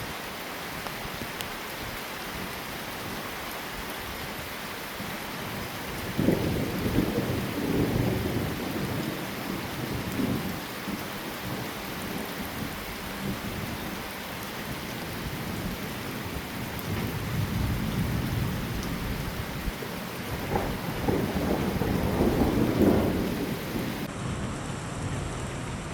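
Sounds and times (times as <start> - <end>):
heavy rain falling: 0.0 - 25.9
rolling thunder: 6.0 - 13.7, 15.4 - 24.1.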